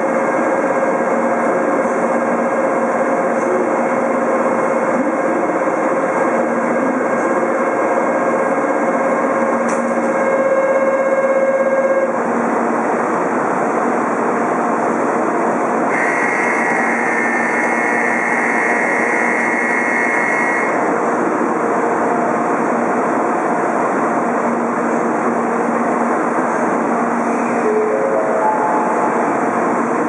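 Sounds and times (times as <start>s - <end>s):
train running noise: 0.0s - 30.0s
train doors closing: 9.4s - 10.2s
steady high tone: 15.9s - 20.8s.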